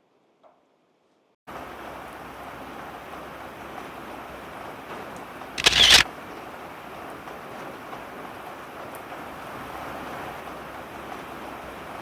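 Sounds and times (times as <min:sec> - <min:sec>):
camera shutter rapid burst: 0:05.6 - 0:06.0.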